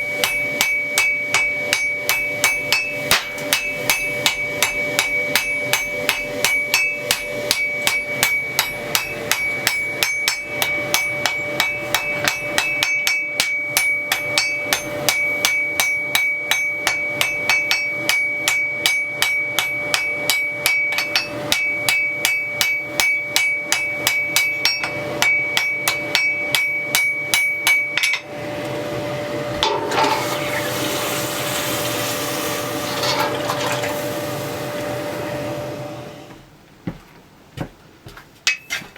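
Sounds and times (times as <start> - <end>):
anvil ringing: 0.0 - 28.4, 29.6 - 30.6
hammer striking steel on anvil: 0.0 - 28.4, 29.6 - 30.3.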